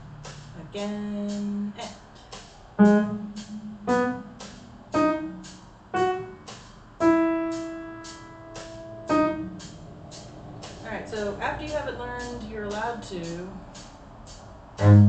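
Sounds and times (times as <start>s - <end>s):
slow piano phrase: 2.8s - 10.8s.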